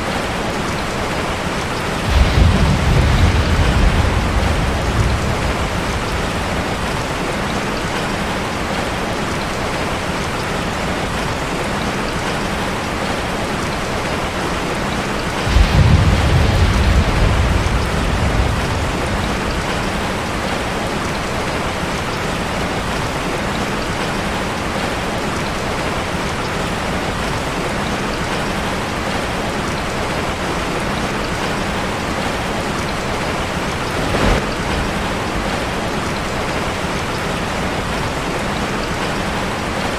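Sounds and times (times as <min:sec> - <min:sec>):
rain drumming on a metal roof: 0:00.0 - 0:39.9
low rumble of thunder: 0:01.7 - 0:08.8, 0:14.9 - 0:21.9, 0:31.0 - 0:39.0.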